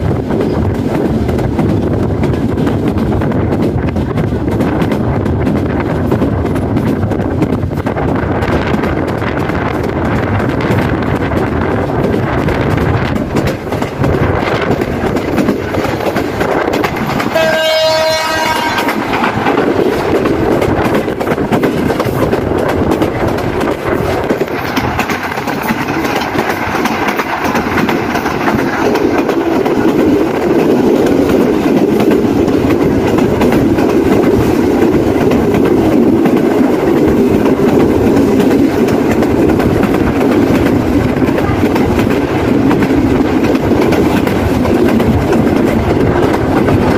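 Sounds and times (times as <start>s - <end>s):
rushing air: 0.0s - 46.9s
train wheels rumbling on rail: 0.0s - 46.9s
locomotive horn blast: 17.3s - 19.0s.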